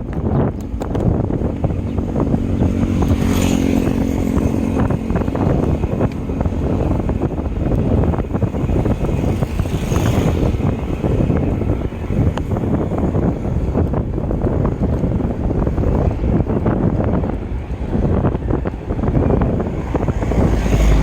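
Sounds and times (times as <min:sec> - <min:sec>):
vehicle engine hum: 0:00.0 - 0:21.0
wind buffeting microphone: 0:00.0 - 0:21.0.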